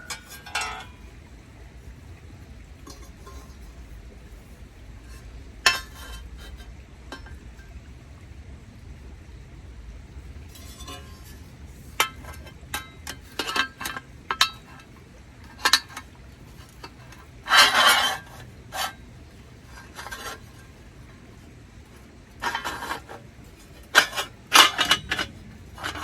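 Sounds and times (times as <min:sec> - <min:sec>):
metal parts rattling: 0:00.0 - 0:01.0, 0:22.4 - 0:26.0
metal parts scraping together: 0:17.1 - 0:19.0
metal parts clinking: 0:23.8 - 0:26.0.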